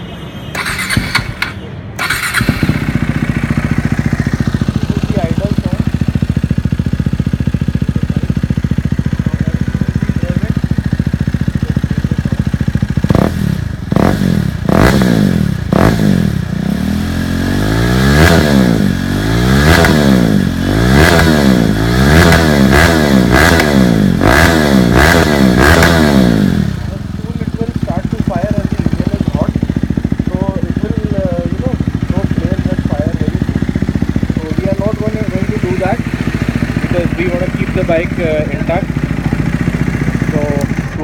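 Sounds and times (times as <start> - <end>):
motorcycle engine idling and revving: 0.0 - 41.0.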